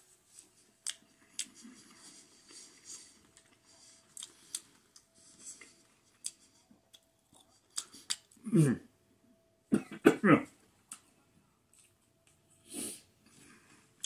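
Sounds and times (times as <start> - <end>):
person chewing food: 0.3 - 8.4, 10.8 - 12.6
sharp mouth clicks and smacks: 6.2 - 8.4.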